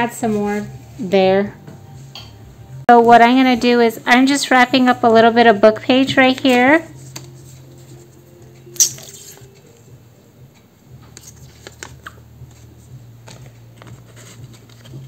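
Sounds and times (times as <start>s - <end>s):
book page rustle: 6.4s - 8.2s, 8.8s - 9.6s, 11.1s - 15.0s.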